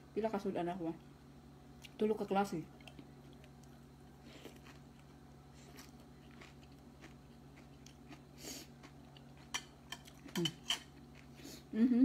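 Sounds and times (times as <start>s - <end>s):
low steady hum: 0.0s - 12.0s
soft chewing and mouth sounds: 2.7s - 11.7s.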